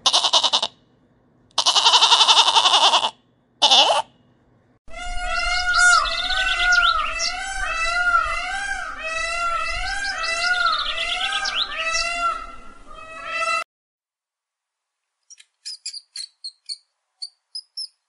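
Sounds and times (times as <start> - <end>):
peacock calling: 1.6 - 4.1, 4.9 - 13.6
rat squeaking: 15.3 - 18.0.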